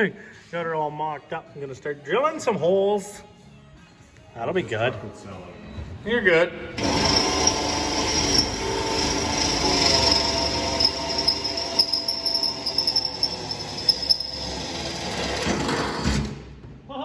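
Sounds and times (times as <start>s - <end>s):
electric drill whining: 6.8s - 16.1s.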